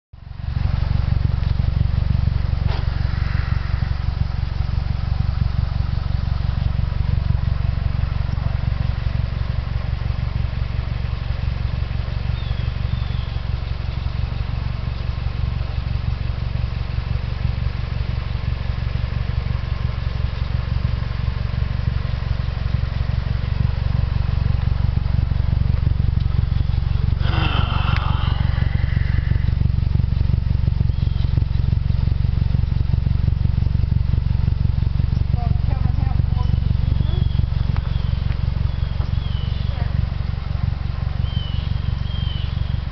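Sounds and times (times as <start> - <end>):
car engine idling: 0.2 - 42.9
high wavering sound: 2.7 - 6.0, 27.0 - 30.0.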